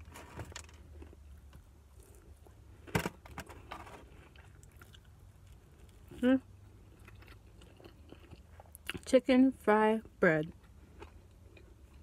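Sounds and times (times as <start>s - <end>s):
low steady hum: 0.0s - 12.0s
faint chewing: 3.5s - 9.2s, 10.4s - 12.0s.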